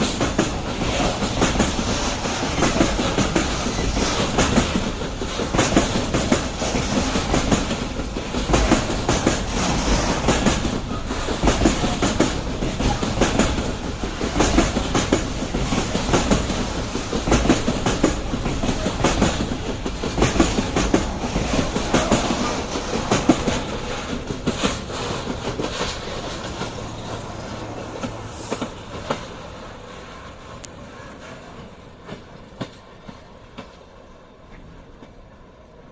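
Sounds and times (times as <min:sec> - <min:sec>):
train wheels clattering over rail joints: 0:00.0 - 0:33.9.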